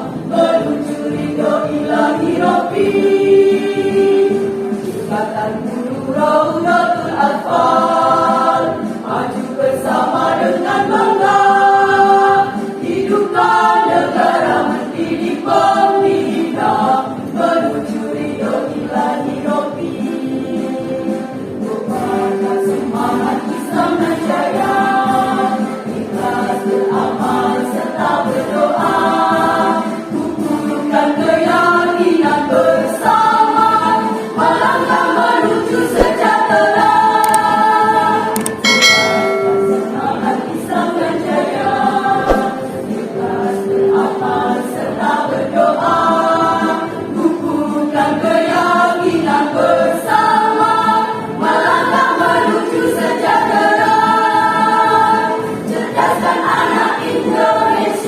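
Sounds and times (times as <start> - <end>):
choir singing a march: 0.0 - 58.0
accompaniment with steady beat: 38.4 - 43.1.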